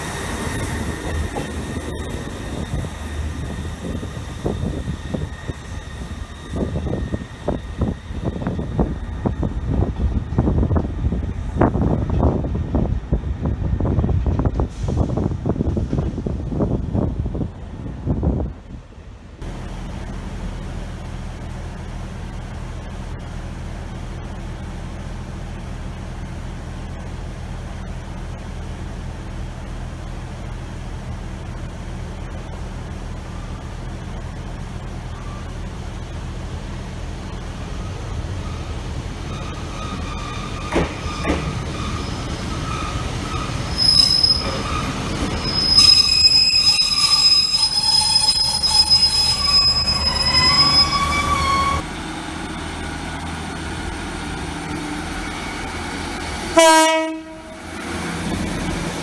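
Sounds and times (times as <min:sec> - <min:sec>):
train brakes squealing: 0:00.0 - 0:09.3, 0:37.8 - 0:51.8
diesel engine drone: 0:18.9 - 0:40.6, 0:51.1 - 0:59.0.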